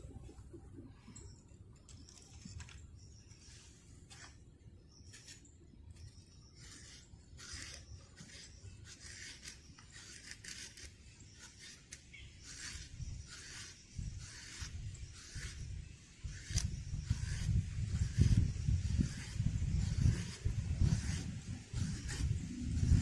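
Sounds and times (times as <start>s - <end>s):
short rubbing or scraping: 6.6s - 23.0s.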